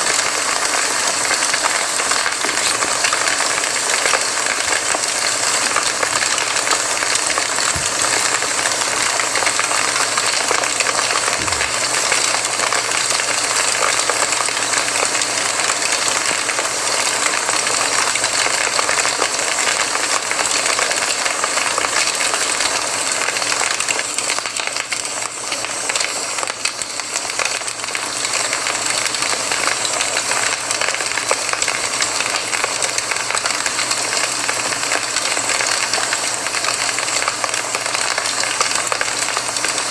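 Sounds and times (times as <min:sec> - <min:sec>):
campfire crackling: 0:00.4 - 0:14.8.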